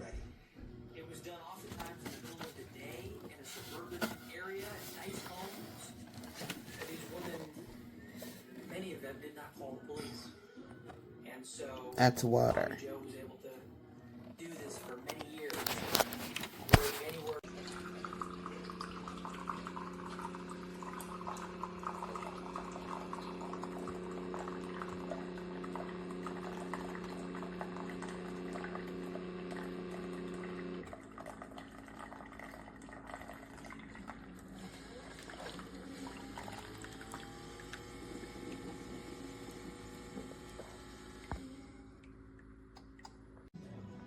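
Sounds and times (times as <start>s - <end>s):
coffee maker pump humming: 0.0s - 9.9s, 10.7s - 43.5s
coffee pouring into cup: 1.0s - 9.9s, 14.4s - 41.5s
trickle and dripping: 17.5s - 24.7s.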